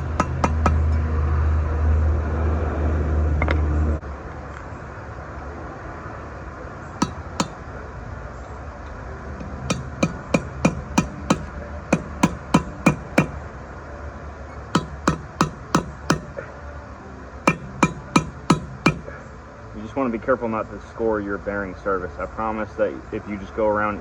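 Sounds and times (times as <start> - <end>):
hammer tapping steel punch: 0.0 - 1.0, 7.0 - 7.6, 9.4 - 13.4, 14.7 - 16.4, 17.5 - 19.2.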